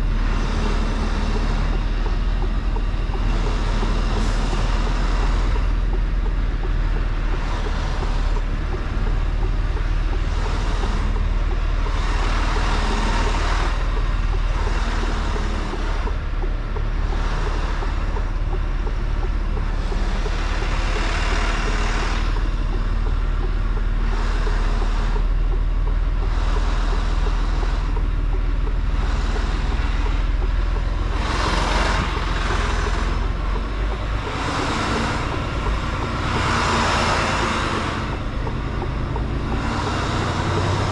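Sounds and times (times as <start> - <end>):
road noise: 0.0 - 40.9
truck diesel engine rumble: 0.0 - 40.9.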